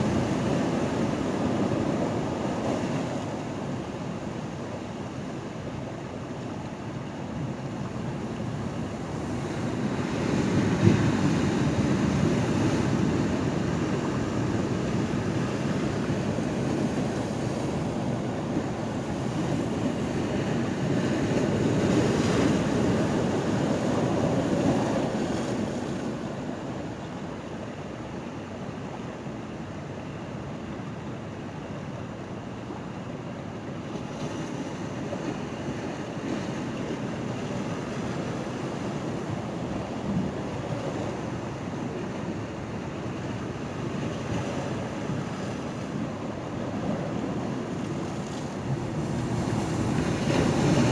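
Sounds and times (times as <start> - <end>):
sea waves washing at a pier: 0.0 - 50.9.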